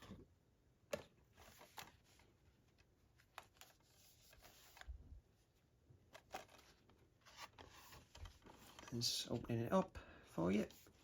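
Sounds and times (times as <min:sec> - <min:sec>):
cardboard and plastic rustling: 0:00.9 - 0:05.1, 0:06.0 - 0:09.6.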